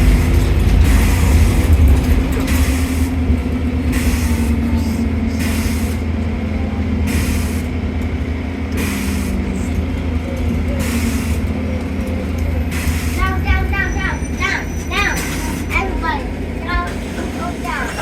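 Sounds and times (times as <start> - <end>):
bus engine drone: 0.0 - 18.0.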